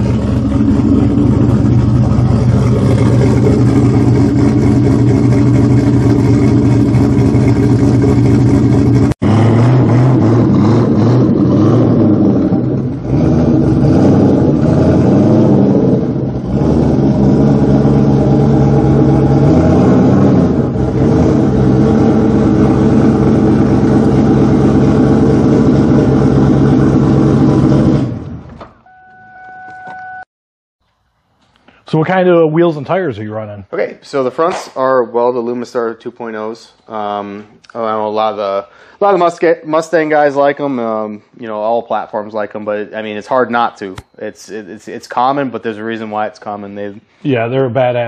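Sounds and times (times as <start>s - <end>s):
car engine idling with throttle blips: 0.0s - 29.0s.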